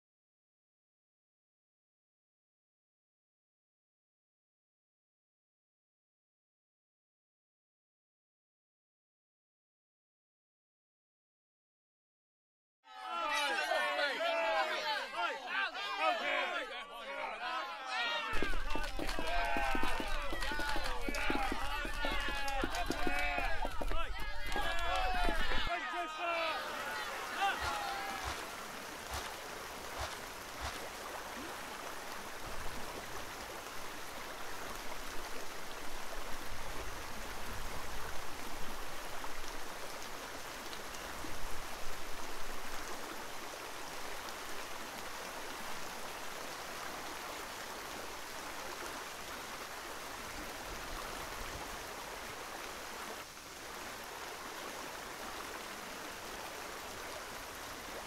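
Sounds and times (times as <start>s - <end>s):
running water rushing: 13.0s - 58.0s.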